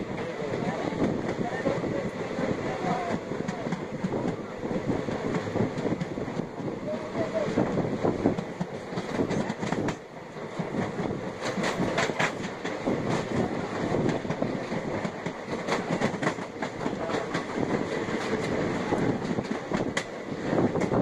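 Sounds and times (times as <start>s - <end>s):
train wheels rumbling on rails: 0.0s - 21.0s
wheels clacking over rail joints: 8.2s - 21.0s.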